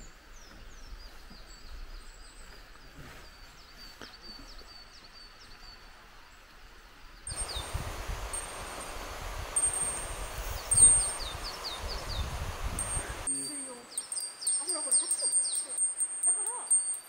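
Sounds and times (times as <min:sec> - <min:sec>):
songbird chirping: 0:00.0 - 0:17.0
bear bell ringing: 0:09.6 - 0:11.4, 0:12.7 - 0:17.0.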